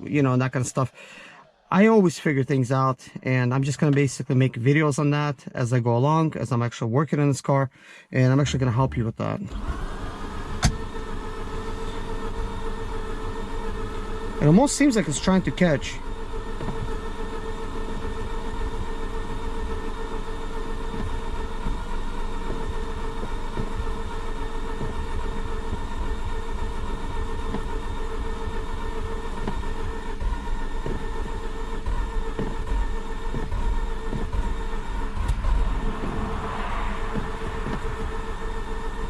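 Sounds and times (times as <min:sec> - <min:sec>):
engine cranking on starter: 0:09.4 - 0:39.0.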